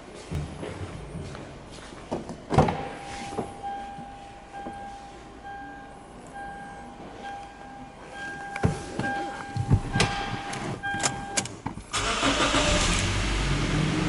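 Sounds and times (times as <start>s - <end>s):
dashboard warning chime beeping: 2.8s - 11.6s.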